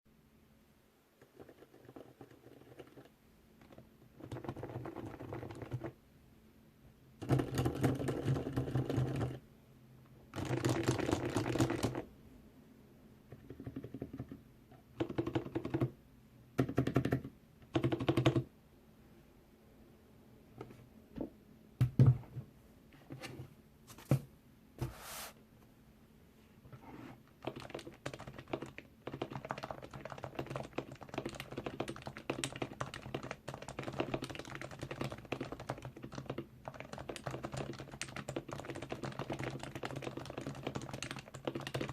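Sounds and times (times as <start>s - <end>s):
muted keyboard typing: 1.2s - 6.0s, 7.2s - 9.4s, 10.3s - 12.1s, 13.3s - 16.0s, 16.6s - 18.5s, 27.4s - 41.9s.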